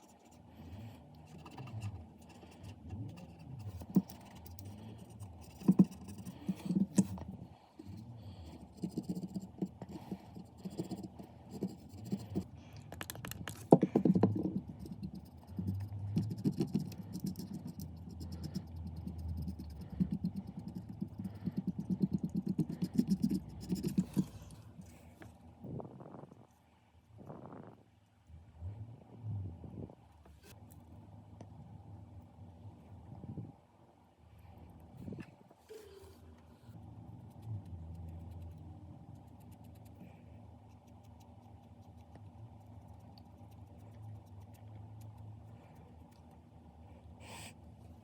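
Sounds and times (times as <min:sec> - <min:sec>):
scratching and scraping: 0:22.4 - 0:25.3.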